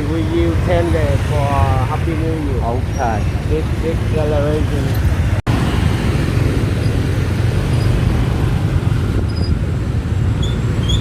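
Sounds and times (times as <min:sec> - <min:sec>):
wind and road noise rumble: 0:00.0 - 0:11.0.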